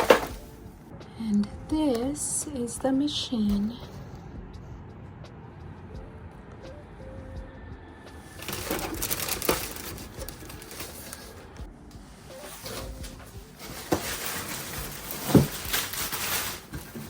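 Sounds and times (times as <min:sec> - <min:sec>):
packaging rustling and crinkling: 0:00.0 - 0:00.5, 0:08.4 - 0:11.6, 0:12.4 - 0:17.0.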